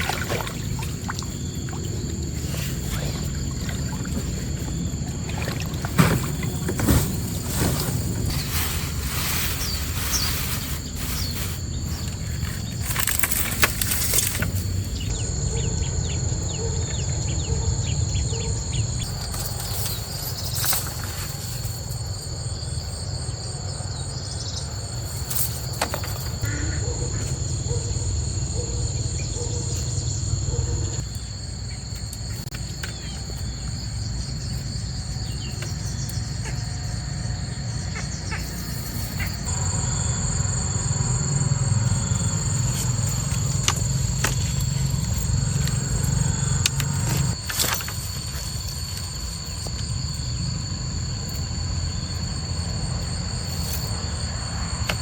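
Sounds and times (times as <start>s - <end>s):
insects shrilling: 0.0s - 16.2s, 30.9s - 55.0s
low rumbling noise: 0.0s - 20.2s.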